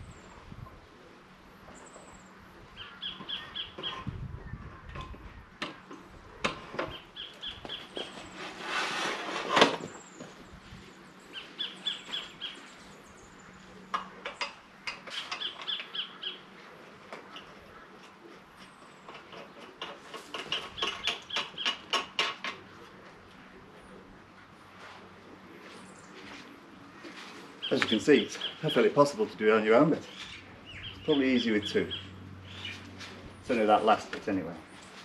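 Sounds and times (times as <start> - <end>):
bird trilling: 2.8 - 4.6, 6.9 - 8.2, 11.3 - 12.6, 15.1 - 16.5, 30.1 - 32.9.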